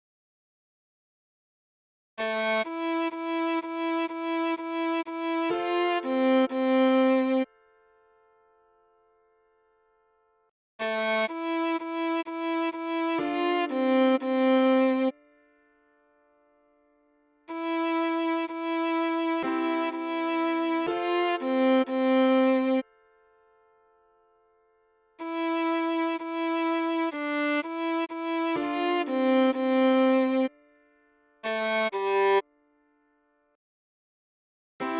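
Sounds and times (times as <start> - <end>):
solo viola melody: 2.2 - 7.6, 10.8 - 15.3, 17.5 - 22.9, 25.2 - 30.7, 31.4 - 32.6.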